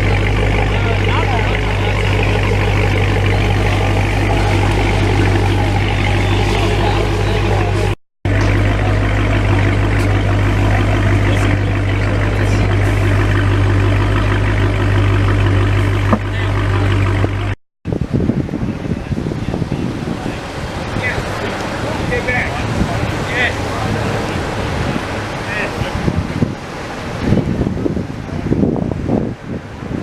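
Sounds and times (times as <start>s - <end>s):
car engine idling: 0.0s - 17.6s, 18.4s - 28.0s
faint voices: 0.0s - 17.6s
rough unsteady noise: 0.0s - 18.2s.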